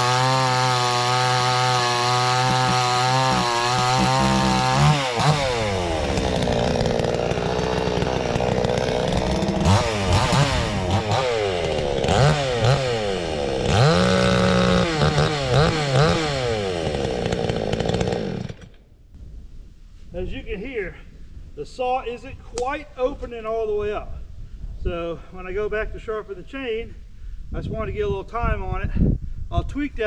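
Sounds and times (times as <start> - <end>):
chainsaw revving: 0.0 - 18.8.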